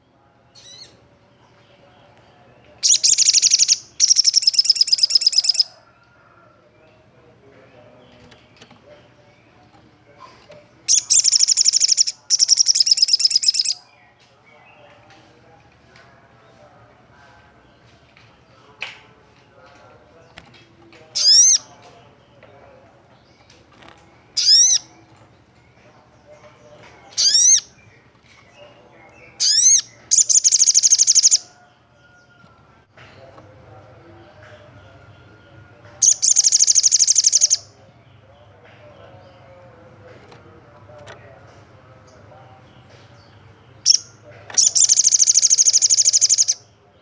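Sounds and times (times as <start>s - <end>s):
sunbird rapid trill: 2.8s - 5.7s, 10.9s - 13.8s, 29.4s - 31.5s, 36.0s - 37.7s, 44.6s - 46.6s.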